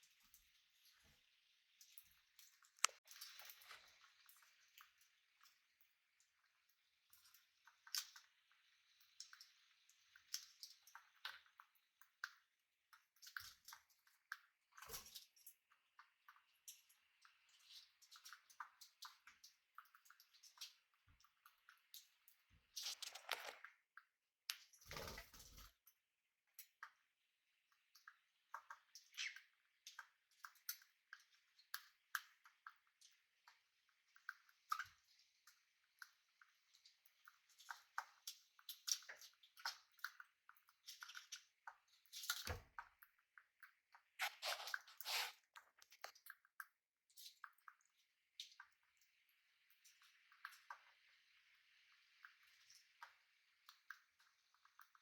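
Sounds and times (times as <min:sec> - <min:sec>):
birds pecking with small clicks: 0:01.8 - 0:44.9, 0:45.6 - 0:49.1, 0:49.7 - 0:50.9, 0:52.2 - 0:55.0.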